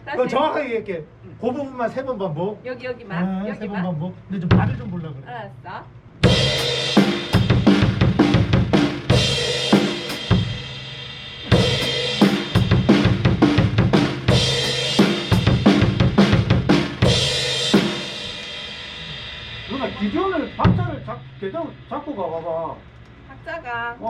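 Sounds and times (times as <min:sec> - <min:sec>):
drum kit fill: 0:04.4 - 0:05.0, 0:06.2 - 0:22.8.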